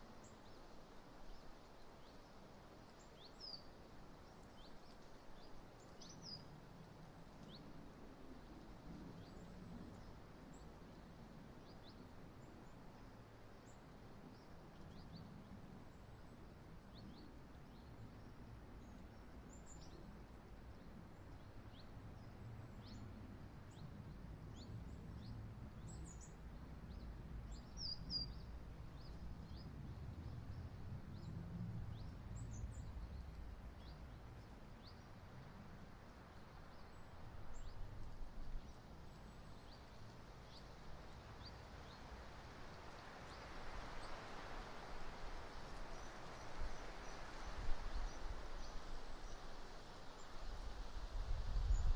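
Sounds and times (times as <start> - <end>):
small birds chirping: 45.4 - 49.5.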